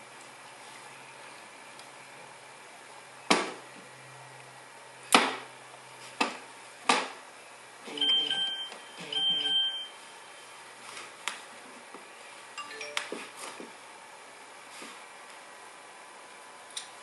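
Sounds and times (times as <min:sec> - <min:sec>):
phone electronic tones: 0:07.9 - 0:10.1, 0:12.6 - 0:13.4.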